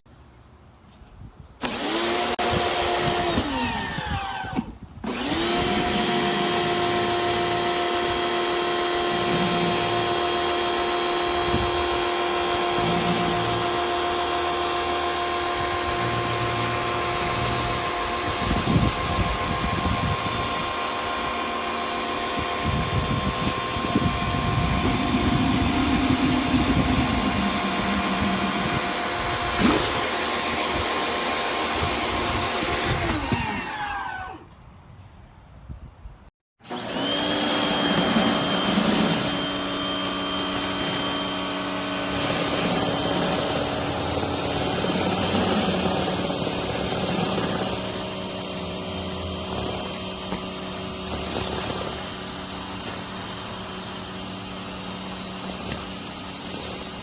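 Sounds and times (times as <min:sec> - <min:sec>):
pressure washer motor whining: 0:01.6 - 0:34.5, 0:36.6 - 0:57.0
water spray hissing: 0:23.0 - 0:32.8.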